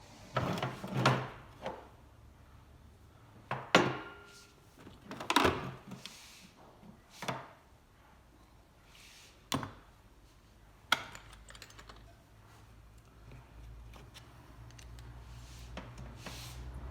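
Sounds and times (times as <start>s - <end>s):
tools clattering on a workbench: 3.5s - 5.7s.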